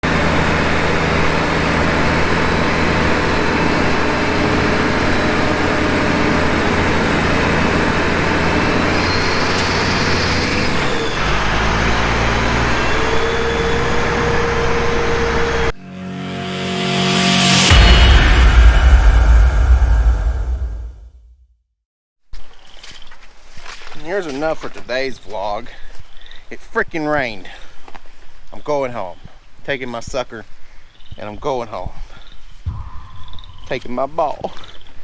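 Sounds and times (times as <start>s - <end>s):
heavy vehicle engine running: 0.0s - 21.0s
rushing noise: 15.7s - 21.3s, 32.7s - 34.2s.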